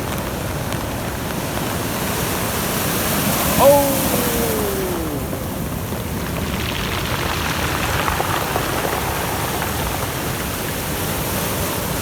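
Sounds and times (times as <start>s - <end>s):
wind: 0.0s - 12.0s
surf rushing: 3.4s - 6.0s.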